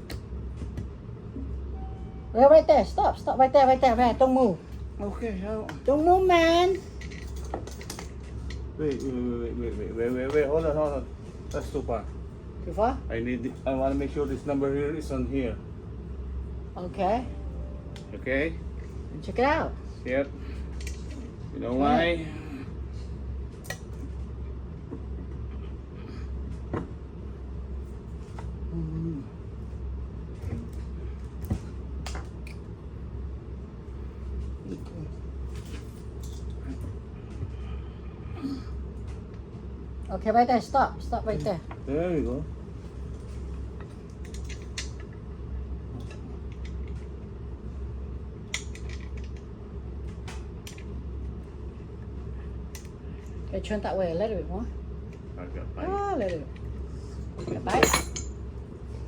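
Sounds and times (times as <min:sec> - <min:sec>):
low hum: 0:00.0 - 0:59.0
metal parts clicking and knocking: 0:48.5 - 0:49.4
metal parts clinking: 0:57.5 - 0:58.3.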